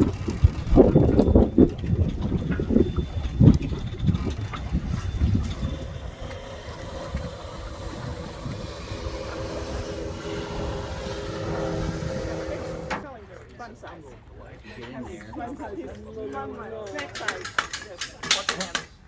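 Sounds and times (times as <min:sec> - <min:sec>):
motorboat engine running: 0:00.0 - 0:13.1
wind buffeting microphone: 0:00.0 - 0:13.1.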